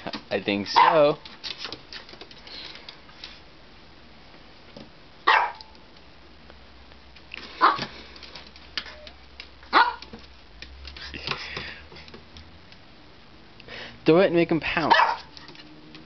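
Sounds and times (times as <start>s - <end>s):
puppy barking: 0.7s - 1.1s, 5.2s - 5.7s, 7.6s - 7.9s, 9.7s - 10.2s, 14.8s - 15.4s.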